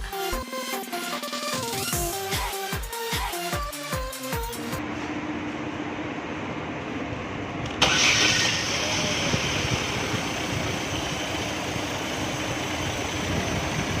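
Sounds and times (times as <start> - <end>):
car engine idling: 7.8 - 14.0.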